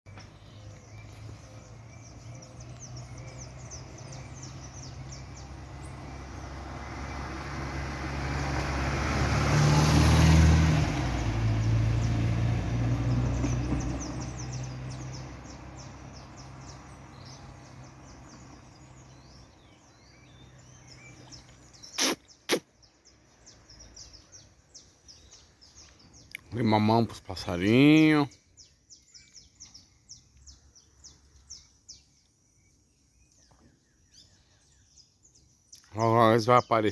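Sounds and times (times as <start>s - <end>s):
birds chirping faintly: 0.1s - 7.3s, 13.0s - 36.9s
car passing: 0.2s - 22.1s.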